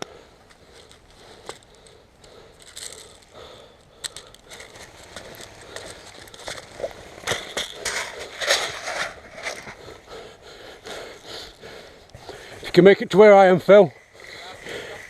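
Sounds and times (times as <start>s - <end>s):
footsteps crunching: 0.4s - 12.6s.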